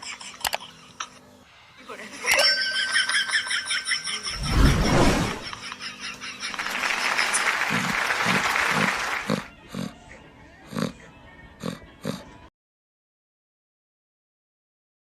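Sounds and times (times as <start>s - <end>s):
animal grunts: 9.2s - 10.0s, 10.7s - 11.0s, 11.6s - 12.4s.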